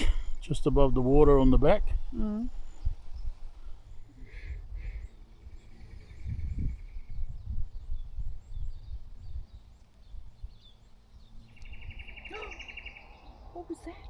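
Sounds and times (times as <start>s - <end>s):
faint chirps of birds or insects: 0.0s - 14.0s
wind rumbling on microphone: 0.0s - 14.0s
high bird calls: 2.0s - 14.0s.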